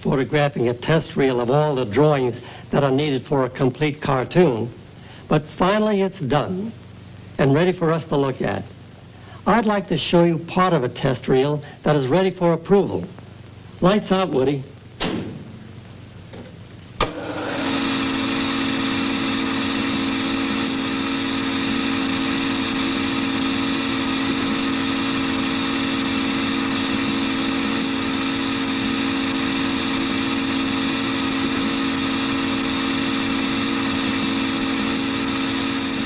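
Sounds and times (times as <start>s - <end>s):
film projector running: 12.7s - 36.0s.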